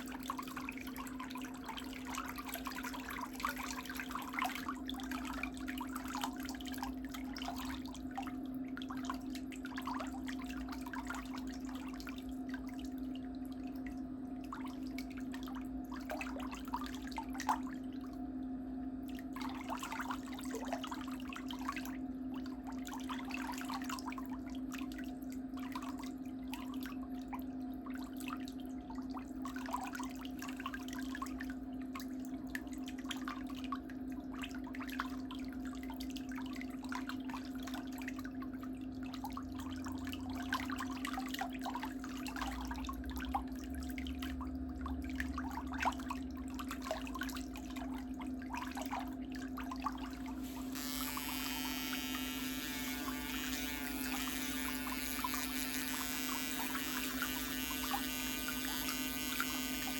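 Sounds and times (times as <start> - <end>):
steady low hum: 49.6 - 59.9.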